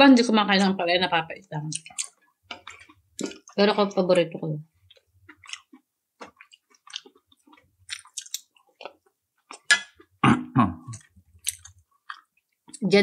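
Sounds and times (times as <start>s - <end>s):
wet mouth smacks: 1.7s - 3.4s, 7.9s - 9.9s, 10.9s - 12.3s
person chewing food: 1.7s - 3.6s, 4.8s - 10.2s, 10.8s - 12.8s.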